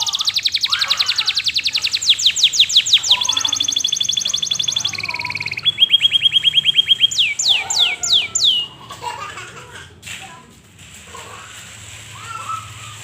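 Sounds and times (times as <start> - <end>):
canary trilling song: 0.0 - 8.9
downward-sweeping whistles: 1.6 - 8.6.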